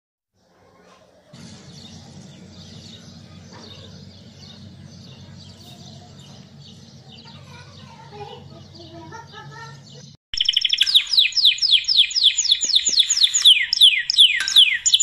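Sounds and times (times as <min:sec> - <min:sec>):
birds chirping: 0:00.4 - 0:15.0.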